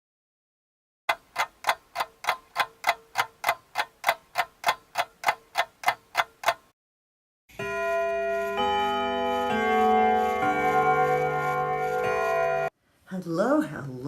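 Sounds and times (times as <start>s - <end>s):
clock ticking: 1.1s - 6.7s.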